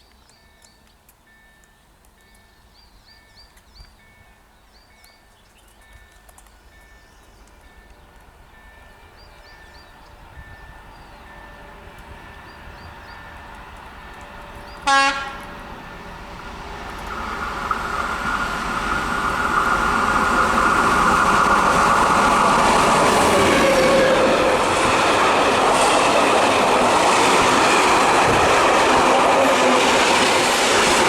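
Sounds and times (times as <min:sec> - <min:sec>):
birds chirping: 0:00.0 - 0:15.7
diesel locomotive approaching: 0:00.3 - 0:31.0
locomotive horn blast: 0:14.8 - 0:15.6.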